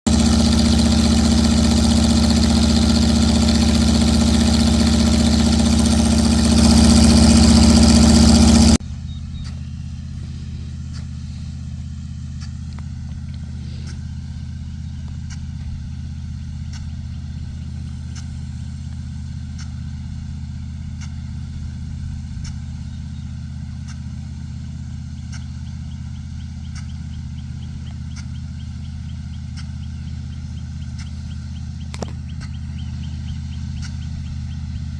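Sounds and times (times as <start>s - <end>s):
low engine hum: 0.0s - 34.9s
large engine running loudly: 0.1s - 34.9s.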